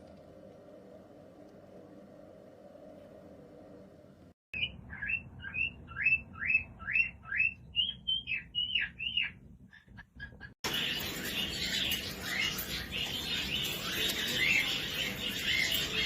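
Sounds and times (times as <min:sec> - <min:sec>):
cockatiel whistling: 0:04.6 - 0:09.4.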